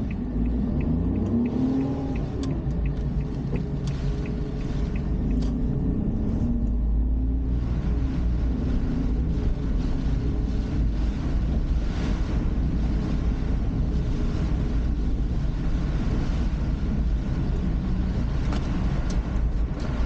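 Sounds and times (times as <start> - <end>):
light regular ticks: 0.0 - 5.8
car engine and road noise: 0.0 - 20.0.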